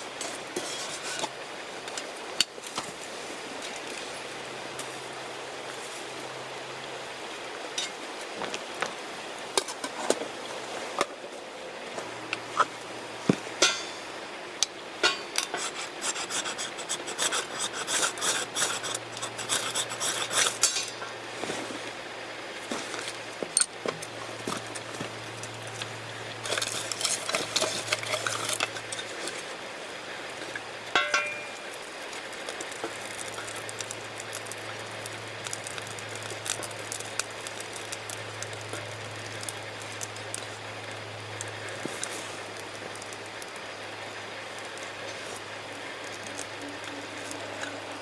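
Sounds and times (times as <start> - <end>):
small objects clattering: 26.4 - 29.5
metallic or glass clink: 31.0 - 31.6.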